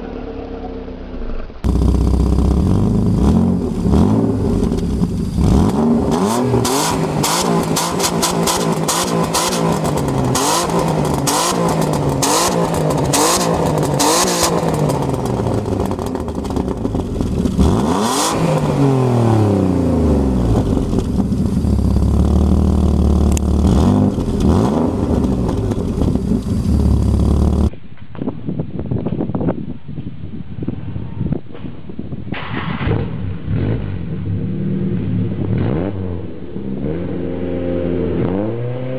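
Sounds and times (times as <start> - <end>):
car engine revving: 0.0 - 27.7.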